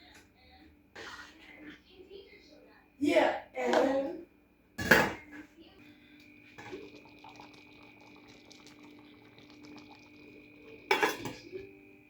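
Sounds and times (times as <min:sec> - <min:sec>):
soup simmering and bubbling: 0:06.2 - 0:12.0.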